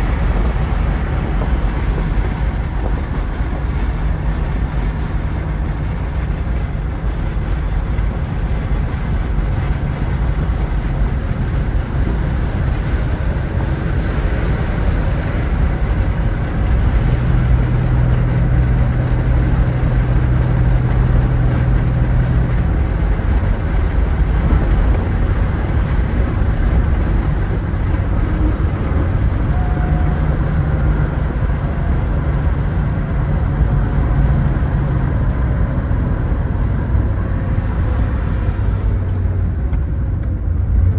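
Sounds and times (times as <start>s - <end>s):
car engine running: 0.0s - 40.9s
road and wind noise: 0.0s - 40.9s.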